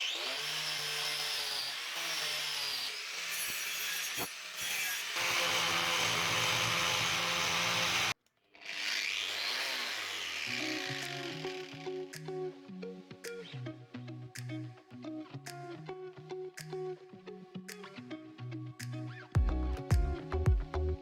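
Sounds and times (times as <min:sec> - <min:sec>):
angle grinder cutting wood: 0:00.0 - 0:12.6.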